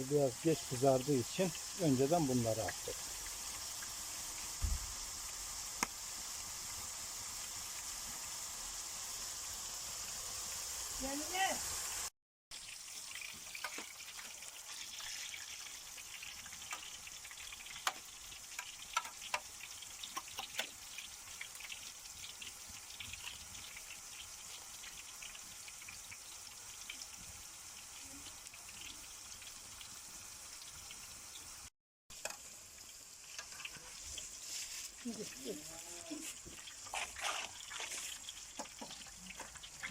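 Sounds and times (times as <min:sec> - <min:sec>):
vegetables sizzling in hot oil: 0:00.0 - 0:39.9
oil popping and crackling: 0:00.4 - 0:09.5, 0:12.5 - 0:31.0, 0:32.1 - 0:39.9.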